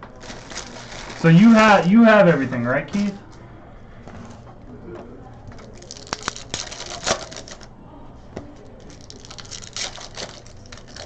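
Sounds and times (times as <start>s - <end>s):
card packs being torn open: 0.0s - 3.2s, 5.6s - 7.7s, 8.8s - 11.0s.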